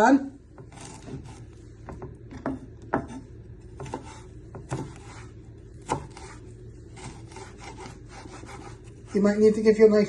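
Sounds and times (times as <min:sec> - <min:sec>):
knife chopping on a board: 0:00.5 - 0:06.4, 0:07.0 - 0:09.0.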